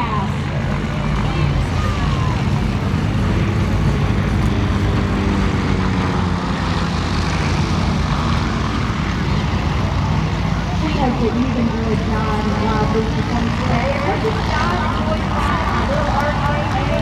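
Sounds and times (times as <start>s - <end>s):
propeller plane droning: 0.0s - 17.0s.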